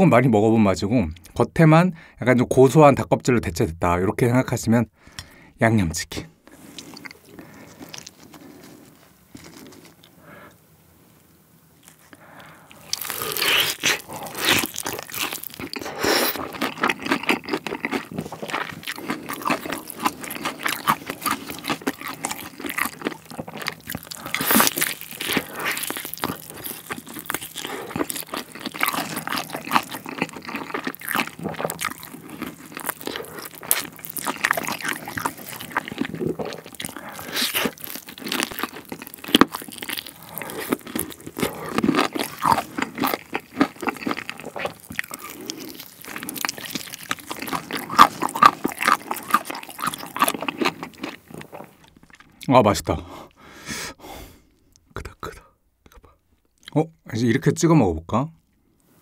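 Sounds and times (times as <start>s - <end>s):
crust crunching: 6.5s - 10.2s, 11.8s - 52.4s
biting and chewing fried chicken: 6.5s - 10.6s, 11.8s - 52.9s.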